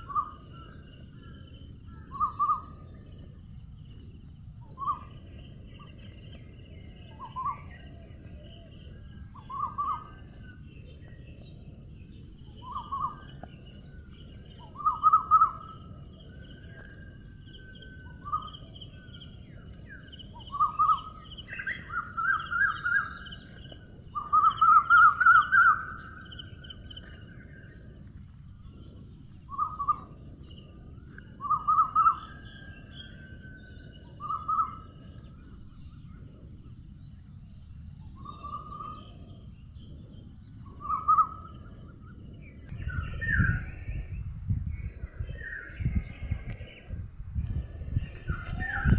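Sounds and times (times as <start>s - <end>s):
insect chorus: 0.0s - 48.9s
bird calling in trills: 1.9s - 2.7s, 9.4s - 10.6s, 14.6s - 15.9s, 19.9s - 26.8s, 29.5s - 30.1s, 31.4s - 34.9s, 40.7s - 41.6s.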